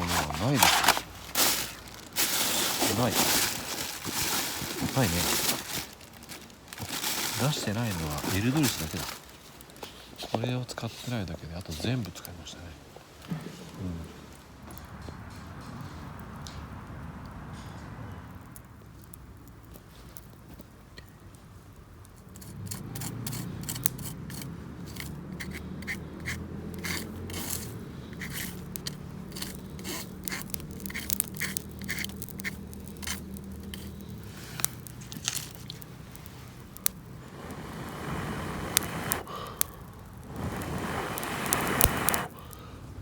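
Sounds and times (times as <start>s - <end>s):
camping gear clinks and knocks: 0.0s - 10.3s
scraping and rustling: 0.0s - 14.5s, 22.2s - 42.4s.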